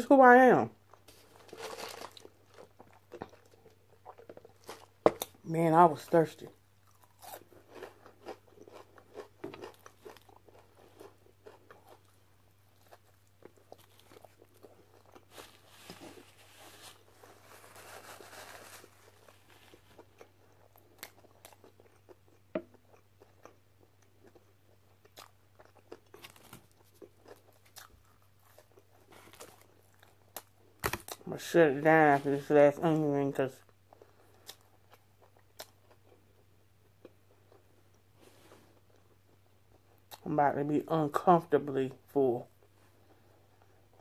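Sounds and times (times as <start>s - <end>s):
crunching and chewing fried food: 0.8s - 44.0s
paper napkin rustling: 15.3s - 20.0s.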